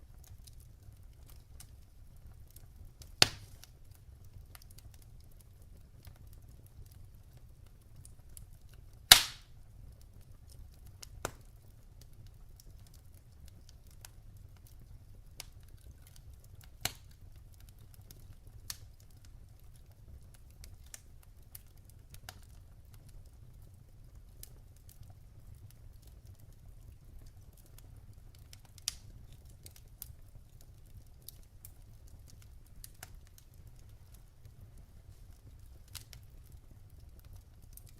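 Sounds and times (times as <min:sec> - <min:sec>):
fire crackling: 0:00.0 - 0:37.9
low rumble of burning: 0:00.0 - 0:37.9
sharp pops of fire: 0:03.0 - 0:03.8, 0:09.0 - 0:09.6, 0:11.0 - 0:11.5, 0:16.7 - 0:17.2, 0:28.3 - 0:30.2.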